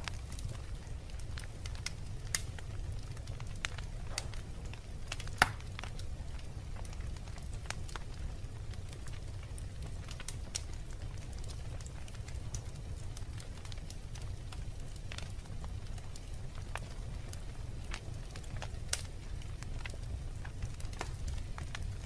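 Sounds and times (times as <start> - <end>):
wood fire crackling: 0.0 - 22.0
loud pop from fire: 3.7 - 4.4, 5.1 - 5.8.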